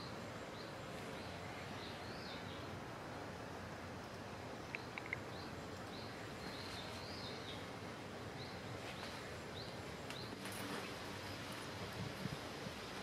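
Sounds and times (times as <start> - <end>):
small birds chirping: 0.0 - 11.0
outdoor background noise: 0.0 - 13.0
sharp ticks: 4.7 - 5.3.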